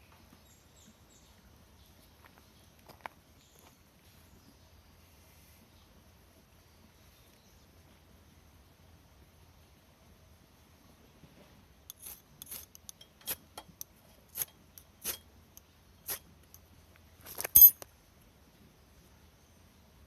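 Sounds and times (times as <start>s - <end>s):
ringing clatter: 11.9s - 13.8s, 17.3s - 17.8s
small hard objects clinking: 11.9s - 15.2s, 17.2s - 17.9s.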